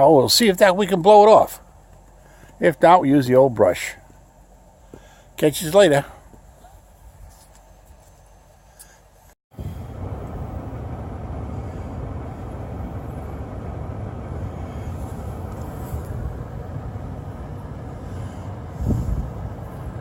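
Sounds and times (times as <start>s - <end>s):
snow blower engine running: 9.6s - 20.0s.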